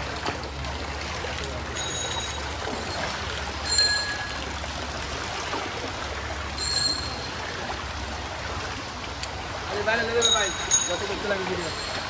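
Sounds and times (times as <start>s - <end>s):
heavy rain falling: 0.0s - 5.3s
water running on street: 0.0s - 12.0s
short bell-like rings: 1.7s - 4.4s, 6.6s - 7.4s, 10.2s - 12.0s.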